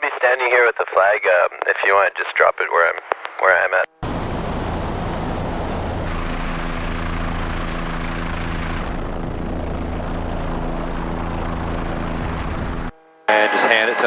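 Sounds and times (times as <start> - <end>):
helicopter engine and rotor drone: 4.0 - 14.0.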